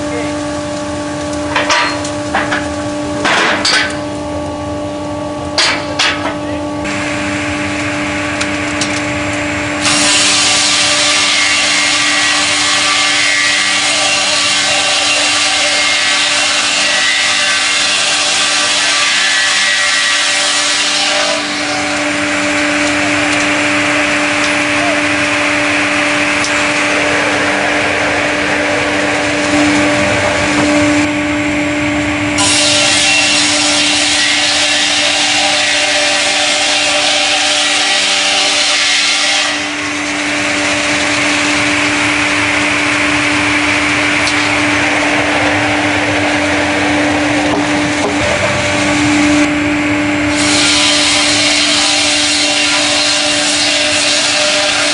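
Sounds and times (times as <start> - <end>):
sawmill machine hum: 0.0 - 54.9
saw blades hissing through wood: 9.8 - 24.8.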